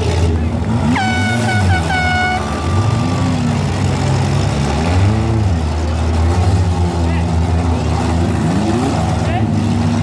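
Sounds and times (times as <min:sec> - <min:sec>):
car engines revving: 0:00.0 - 0:10.0
horn blast: 0:00.8 - 0:03.1.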